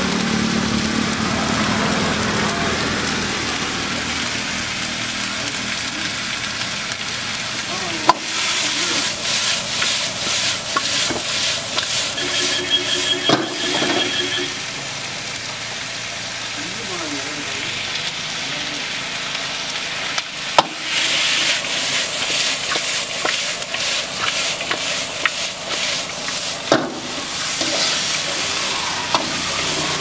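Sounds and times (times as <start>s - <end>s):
chicken sizzling in a wok: 0.0s - 30.0s
metal ladle scraping a wok: 8.2s - 14.6s, 20.9s - 30.0s.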